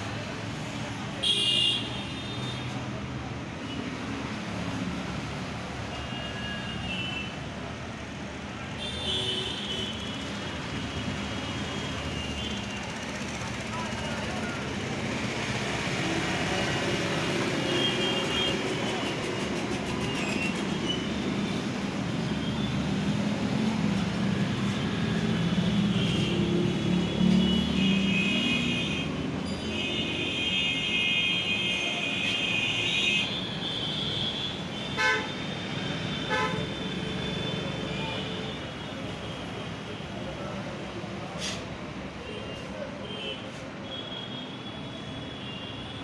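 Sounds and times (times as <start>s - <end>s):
road traffic: 0.0s - 46.0s
vehicle horns honking: 27.2s - 35.5s, 36.2s - 38.5s.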